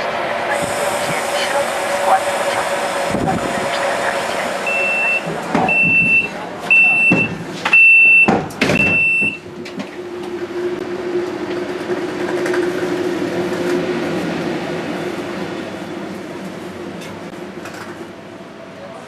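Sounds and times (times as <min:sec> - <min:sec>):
train door warning beeps: 0:04.1 - 0:09.5.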